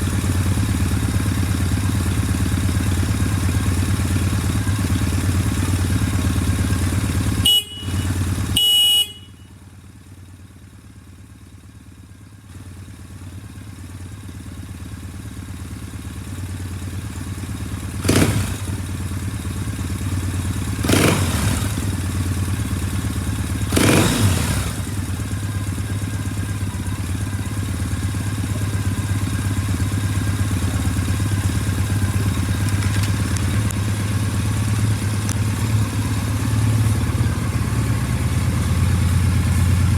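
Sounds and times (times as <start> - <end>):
motorcycle engine idling: 0.0 - 39.9
horn beeps: 7.4 - 9.5.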